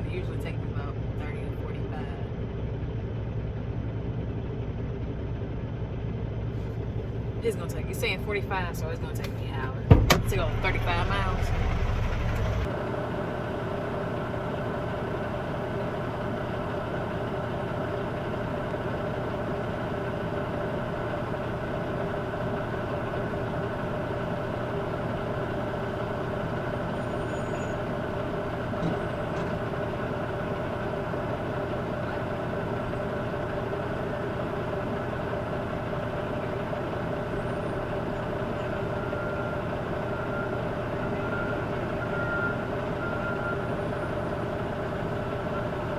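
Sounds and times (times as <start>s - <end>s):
diesel truck engine running: 0.0s - 45.9s.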